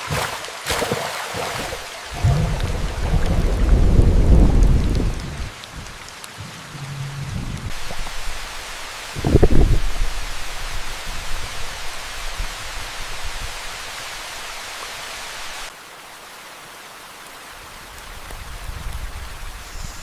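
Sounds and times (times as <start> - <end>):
rain hiss: 1.7 - 20.0
low rumbling: 2.1 - 11.5.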